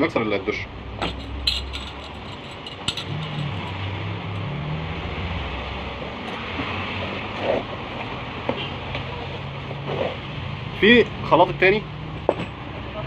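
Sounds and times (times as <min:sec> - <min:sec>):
vehicle engine rumbling: 0:00.4 - 0:10.8.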